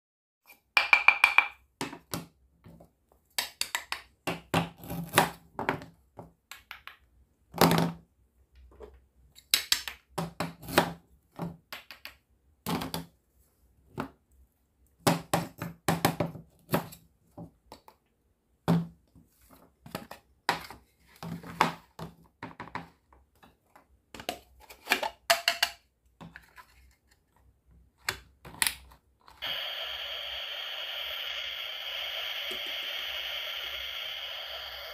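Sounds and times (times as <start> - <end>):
wooden toy knife knocking on board: 0.8 - 1.6.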